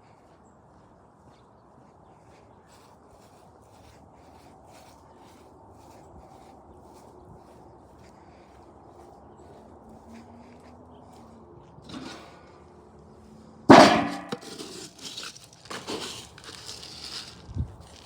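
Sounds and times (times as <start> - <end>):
rattling and scraping: 11.9 - 12.4, 13.7 - 17.3
loud metallic clang: 13.7 - 14.5.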